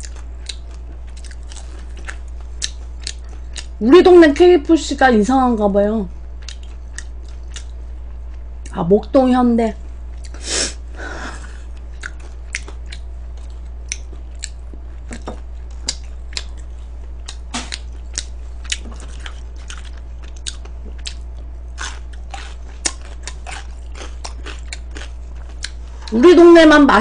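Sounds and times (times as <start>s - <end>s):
crunching fried chicken: 0.0s - 3.8s, 11.4s - 26.2s
low hum: 0.0s - 27.0s.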